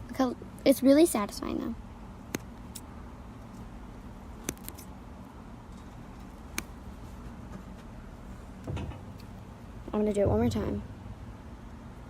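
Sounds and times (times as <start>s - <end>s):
low steady hum: 0.0s - 12.0s
sharp clicks: 4.4s - 4.9s.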